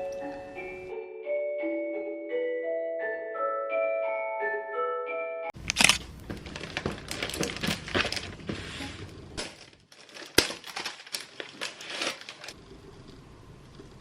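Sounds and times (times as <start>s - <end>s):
crinkling and rustling: 5.6s - 13.2s.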